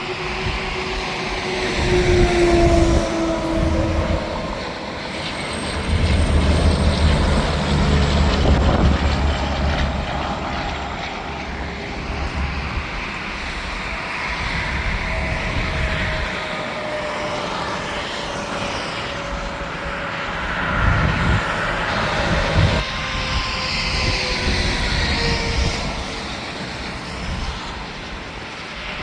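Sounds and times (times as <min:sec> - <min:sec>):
highway traffic rushing: 0:00.0 - 0:29.0
truck passing by: 0:00.2 - 0:13.8.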